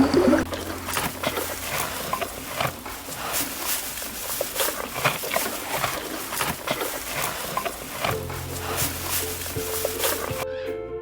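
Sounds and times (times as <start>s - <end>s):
backing track music: 8.0s - 11.0s.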